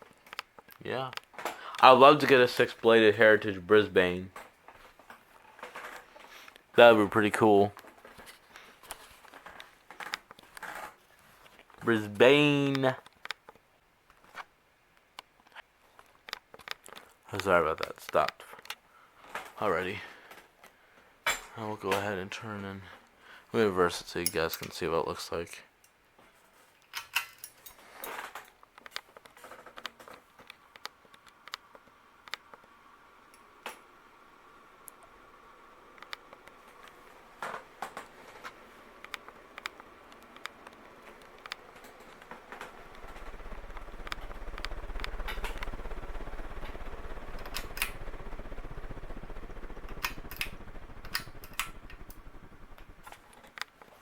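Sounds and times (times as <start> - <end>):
ceiling fan motor hum: 0.0 - 13.2, 30.0 - 54.0
rustle of handling: 0.0 - 14.5, 25.5 - 32.7
sharp clicks: 35.9 - 54.0.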